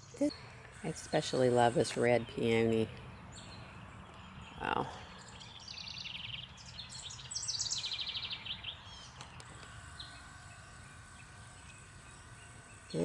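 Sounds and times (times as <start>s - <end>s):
songbird trilling: 2.2s - 9.4s.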